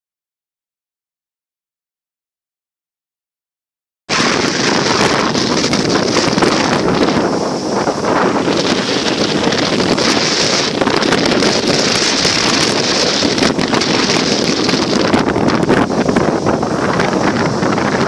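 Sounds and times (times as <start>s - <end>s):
wind buffeting microphone: 4.1s - 18.0s.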